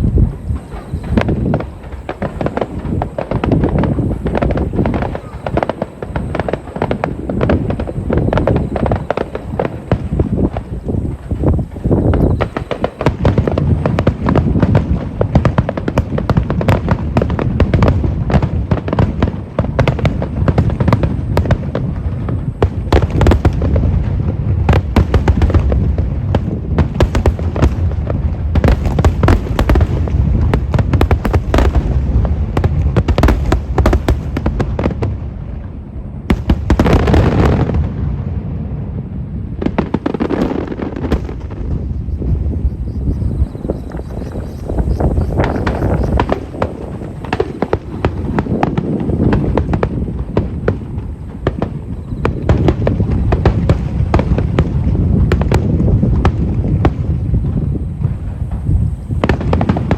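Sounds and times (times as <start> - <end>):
deep rumble of booms: 0.0 - 59.9
firework shells bursting: 19.8 - 35.2, 43.9 - 57.3.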